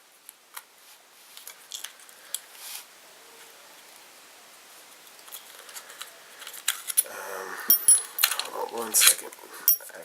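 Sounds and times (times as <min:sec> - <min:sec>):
faint room hiss: 0:00.0 - 0:10.0
small metal parts clicking: 0:05.2 - 0:07.1, 0:07.7 - 0:09.9.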